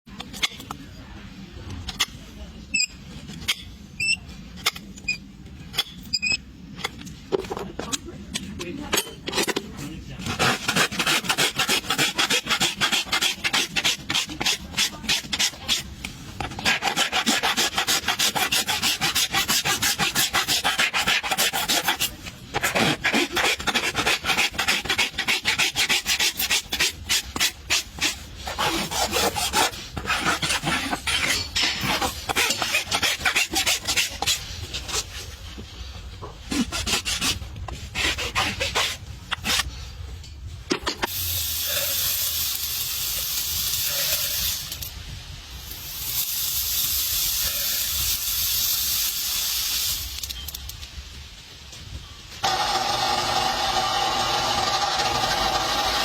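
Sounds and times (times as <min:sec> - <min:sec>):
rasp filing a hoof: 0:10.2 - 0:35.4, 0:36.3 - 0:39.7.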